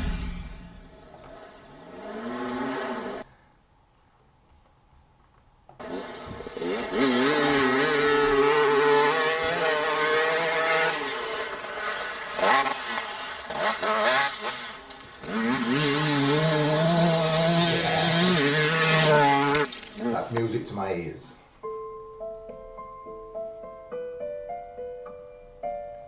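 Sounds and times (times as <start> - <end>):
dirt bike engine revving: 0.0 - 3.2, 5.8 - 20.4.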